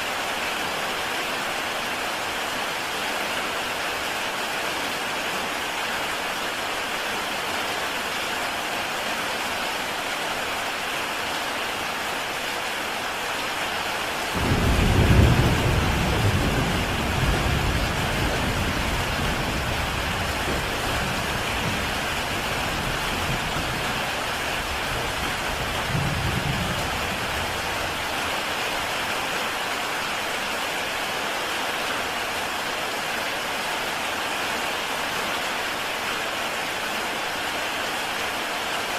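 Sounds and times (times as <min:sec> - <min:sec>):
heavy rain on a tile roof: 0:00.0 - 0:38.9
thunder rumbling: 0:14.4 - 0:28.0.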